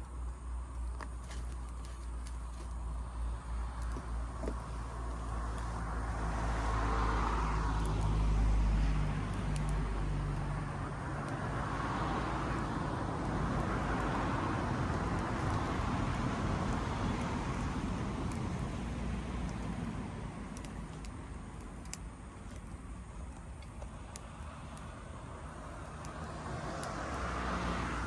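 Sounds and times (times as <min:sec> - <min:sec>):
vehicles passing: 0:00.0 - 0:28.0
faint clicks: 0:20.5 - 0:24.9.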